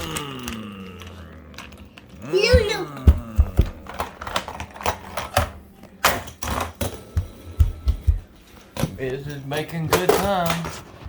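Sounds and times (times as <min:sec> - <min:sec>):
toy truck clattering over plastic track: 0:03.9 - 0:07.0.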